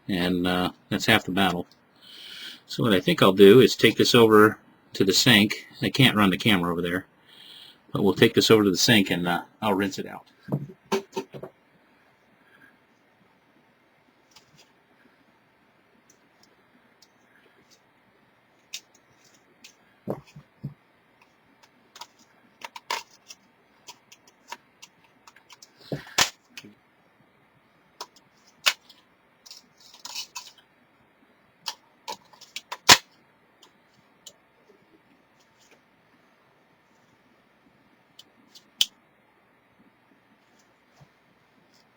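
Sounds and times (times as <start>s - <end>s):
plastic parts clicking and knocking: 21.9s - 26.7s, 31.6s - 34.4s.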